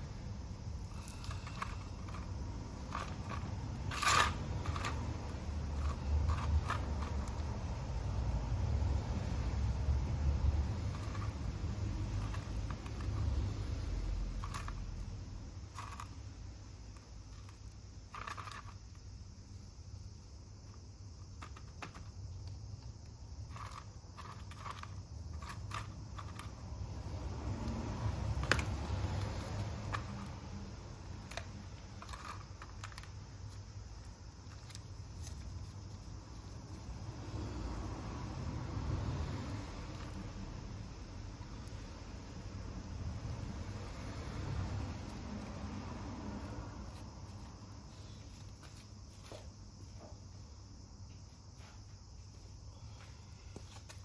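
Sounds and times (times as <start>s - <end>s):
hands working with pots and soil: 0.0s - 50.4s, 51.0s - 54.0s
scraping rustle: 0.8s - 7.6s, 31.1s - 37.0s, 46.4s - 50.0s.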